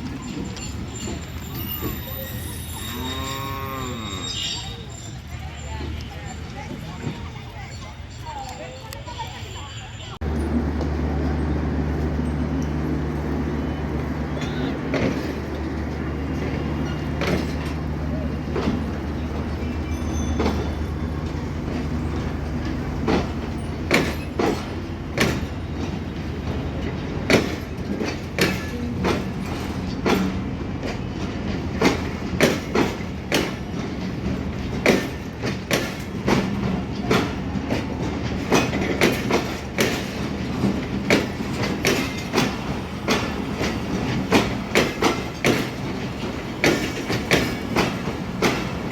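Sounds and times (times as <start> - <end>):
train wheels clattering over rail joints: 0.0 - 4.2, 10.2 - 48.9
locomotive engine drone: 2.3 - 4.7, 10.2 - 32.2.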